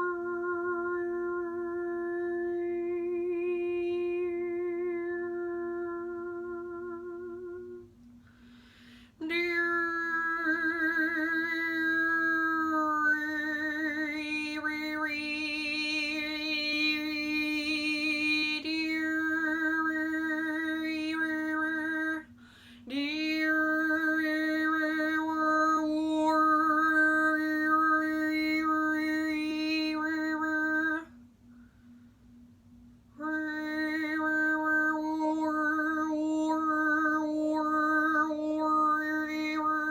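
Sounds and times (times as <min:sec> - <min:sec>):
woman singing long vocal tones: 0:00.0 - 0:08.0, 0:09.1 - 0:31.3, 0:33.1 - 0:39.9
breath: 0:08.2 - 0:09.2, 0:22.3 - 0:22.9, 0:31.4 - 0:32.6.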